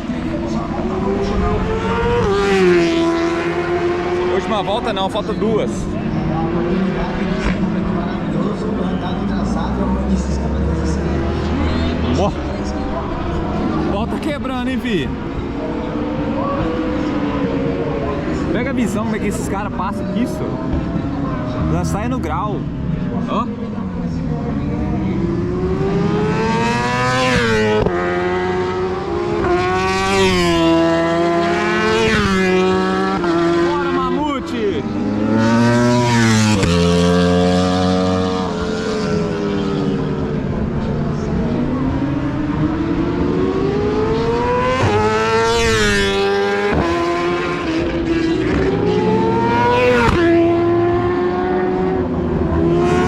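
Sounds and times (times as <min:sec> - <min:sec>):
racing motorcycles accelerating past: 0:00.0 - 0:04.9, 0:22.7 - 0:34.1, 0:34.8 - 0:53.0.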